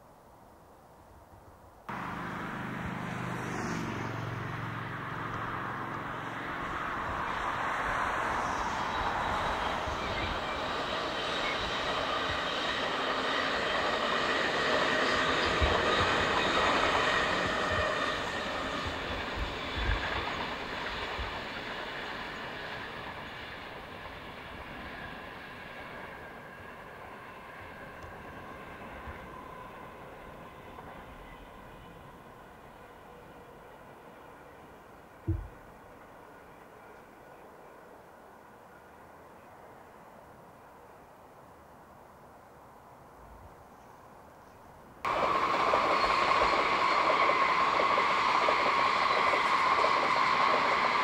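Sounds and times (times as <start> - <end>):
electric train passing: 1.9 - 41.0, 45.0 - 51.0
brief low thumps: 35.3 - 35.6.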